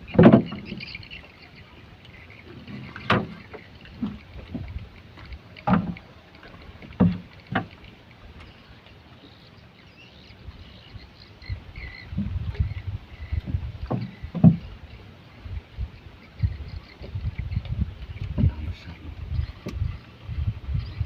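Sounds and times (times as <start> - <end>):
water lapping: 0.0 - 21.0
knocks against boat hull: 0.1 - 0.8, 2.9 - 3.4, 5.6 - 6.0, 13.4 - 14.7.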